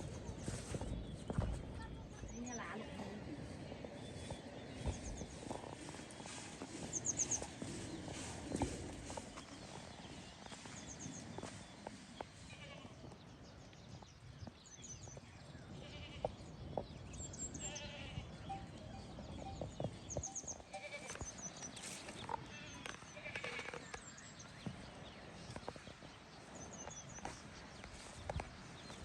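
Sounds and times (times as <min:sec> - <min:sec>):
livestock bleating: 0:12.5 - 0:13.0, 0:15.8 - 0:16.3, 0:17.6 - 0:18.7, 0:20.6 - 0:21.2, 0:22.4 - 0:23.9.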